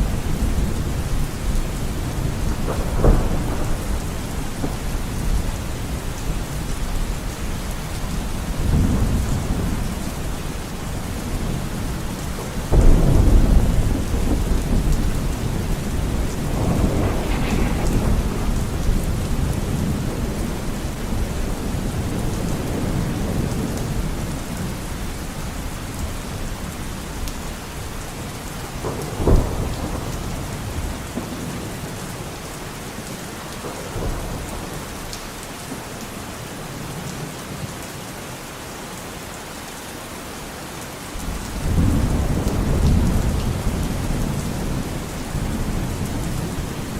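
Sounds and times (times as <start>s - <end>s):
thunder rumbling: 0.0s - 35.1s, 41.2s - 46.9s
steady rain in a forest: 0.0s - 46.9s
sharp thunder crack: 2.0s - 5.4s, 12.6s - 23.4s.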